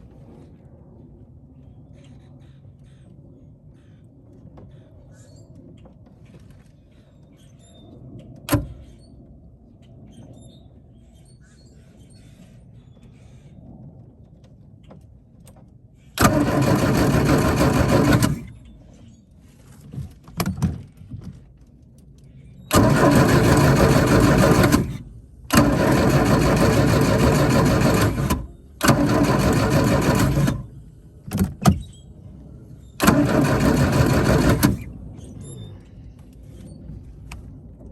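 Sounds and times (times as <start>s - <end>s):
rc boat motor bursts: 16.2s - 18.5s, 22.7s - 30.7s, 33.0s - 35.0s.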